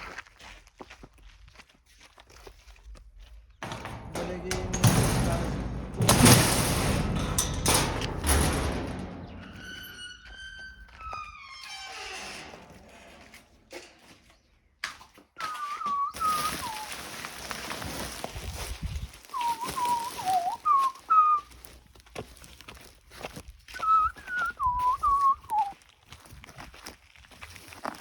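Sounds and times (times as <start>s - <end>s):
scattered knocks: 3.6s - 10.0s
person whistling a tune: 15.4s - 16.9s, 19.4s - 21.5s, 23.8s - 25.7s.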